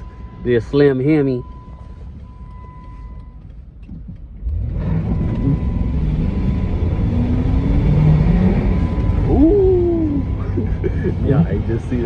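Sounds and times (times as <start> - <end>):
car engine accelerating: 4.0 - 12.0.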